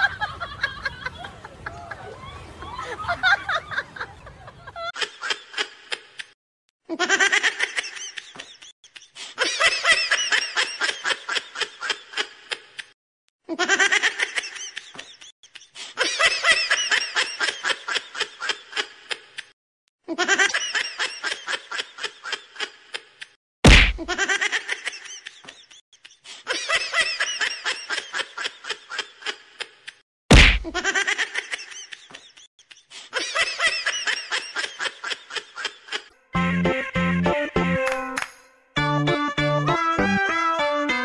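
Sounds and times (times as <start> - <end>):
high-pitched giggling laughter: 0.0 - 6.3, 6.9 - 12.9, 13.5 - 19.5, 20.1 - 23.4, 24.0 - 30.0, 30.6 - 36.3.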